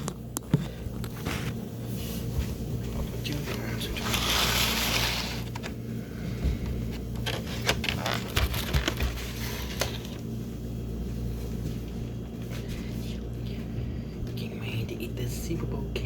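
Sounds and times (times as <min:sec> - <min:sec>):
steady low hum: 0:00.0 - 0:16.0
packaging and utensils clicking: 0:07.2 - 0:10.2.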